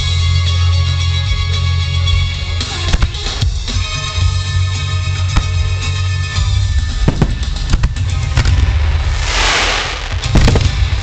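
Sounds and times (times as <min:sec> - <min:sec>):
firework bursts: 0:06.9 - 0:11.0.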